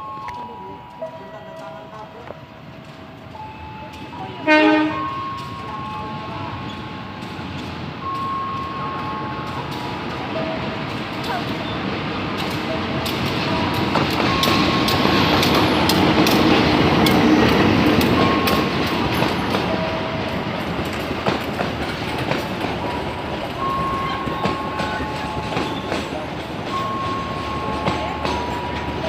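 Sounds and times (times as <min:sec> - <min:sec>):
train wheels clicking over rail joints: 0:05.0 - 0:29.0.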